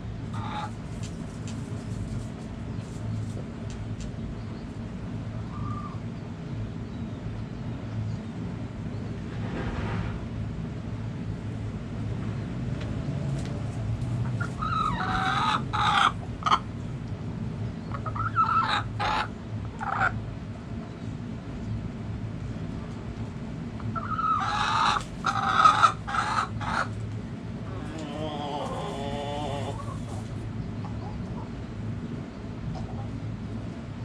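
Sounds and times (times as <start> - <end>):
low background rumble: 0.0 - 34.0
chickens calling: 0.2 - 3.4, 5.2 - 6.4, 14.2 - 16.9, 17.7 - 21.0, 23.8 - 33.6
rooster crowing: 27.7 - 30.1.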